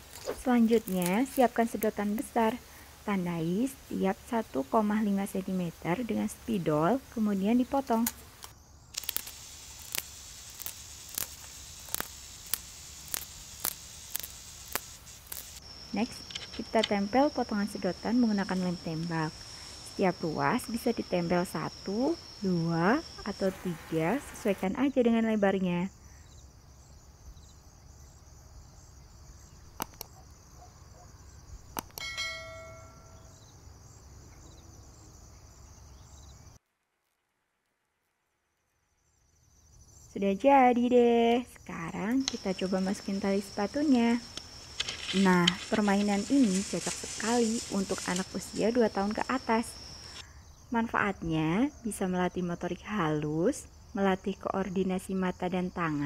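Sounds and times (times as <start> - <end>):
steady hiss: 0.0 - 24.7, 41.9 - 50.3
crickets chirping: 0.0 - 36.6, 38.5 - 56.0
scissors snipping plastic straw: 7.9 - 15.5
sharp clicks: 7.9 - 17.1, 29.7 - 30.2, 31.7 - 32.1, 42.1 - 50.2
bell-like ring: 32.0 - 33.3.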